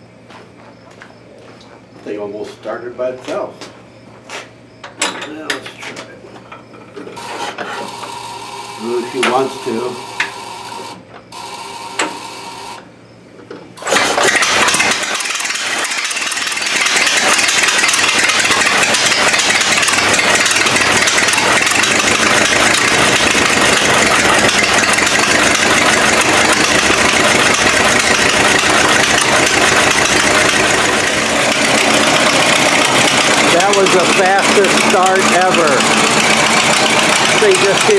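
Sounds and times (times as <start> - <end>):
engine starter clicks: 7.2 - 12.8, 13.8 - 37.9
old tractor engine running: 7.2 - 12.8, 13.8 - 37.9.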